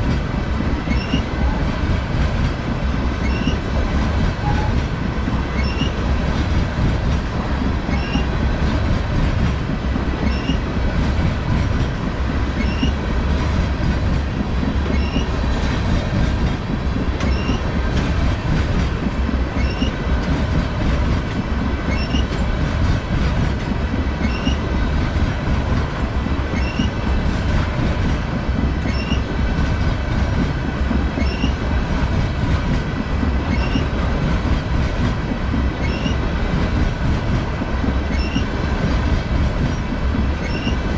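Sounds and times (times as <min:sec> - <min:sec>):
freight train wheels rumbling: 0:00.0 - 0:40.9.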